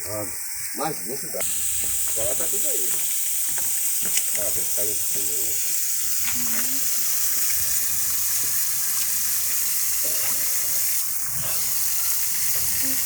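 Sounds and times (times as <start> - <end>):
water hissing from pipe: 0.0 - 13.0.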